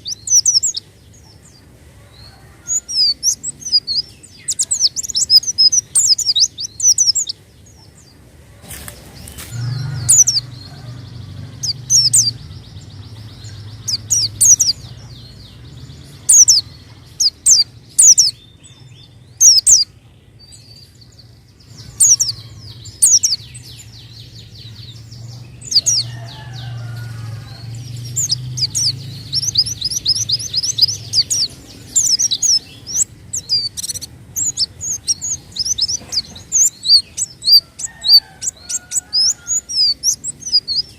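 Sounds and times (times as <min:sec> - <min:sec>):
bird calling in high chirps: 0:00.0 - 0:00.8, 0:02.3 - 0:07.4, 0:09.1 - 0:15.4, 0:19.4 - 0:19.9, 0:21.6 - 0:23.9, 0:25.6 - 0:40.9.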